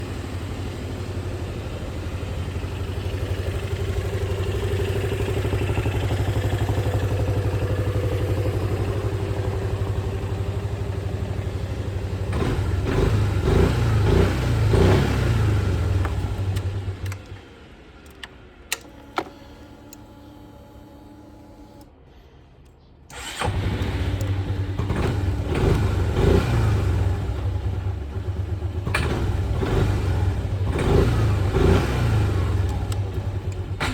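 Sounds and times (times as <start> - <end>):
scooter engine idling and revving: 0.0 - 21.8, 23.1 - 33.9
clicks: 15.9 - 17.4, 18.0 - 20.1, 32.6 - 33.9.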